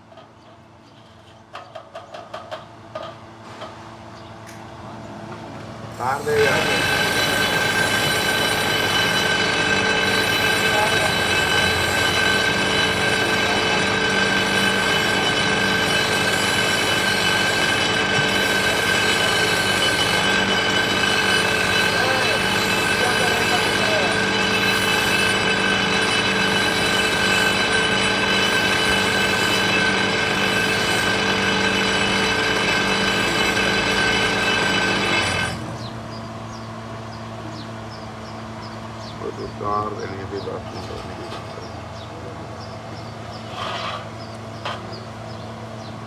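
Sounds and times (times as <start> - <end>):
power tool whining: 5.9 - 36.6
machine running: 6.0 - 35.9.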